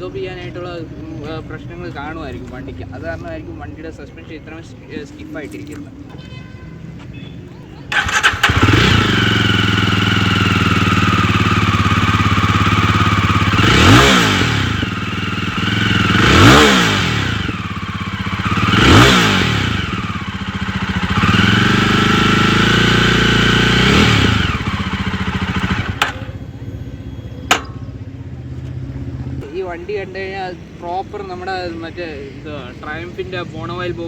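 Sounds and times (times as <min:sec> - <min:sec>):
engine revving: 0:07.9 - 0:26.5
motorcycle engine idling: 0:07.9 - 0:29.4
sharp click: 0:27.5 - 0:28.0.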